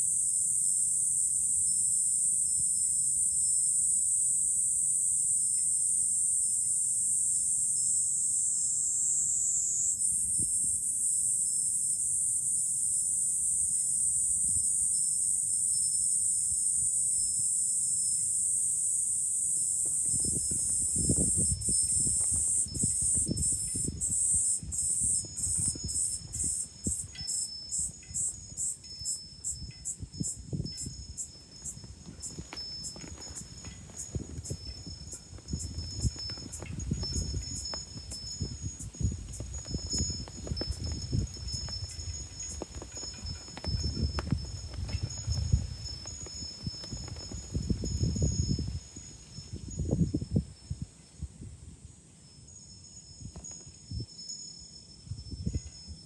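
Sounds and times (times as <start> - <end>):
cicadas droning: 0.0 - 56.0
wind rumbling on microphone: 19.6 - 56.0.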